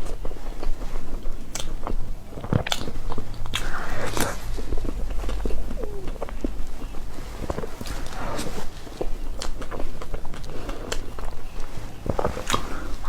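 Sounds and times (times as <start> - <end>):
person chewing cake: 0.0 - 13.0.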